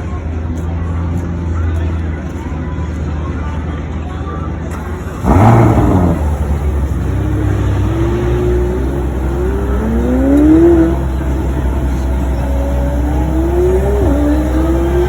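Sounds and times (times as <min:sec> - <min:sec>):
car engine starting and accelerating: 0:04.7 - 0:15.0.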